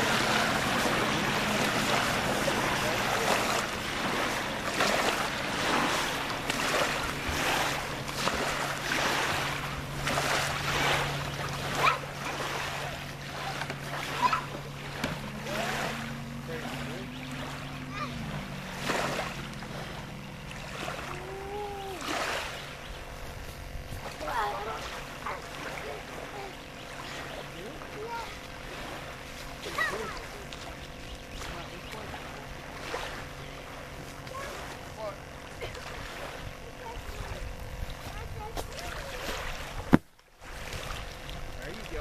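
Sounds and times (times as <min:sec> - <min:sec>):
distant boat motor humming: 0:00.0 - 0:42.0
lake water lapping and splashing: 0:00.0 - 0:42.0.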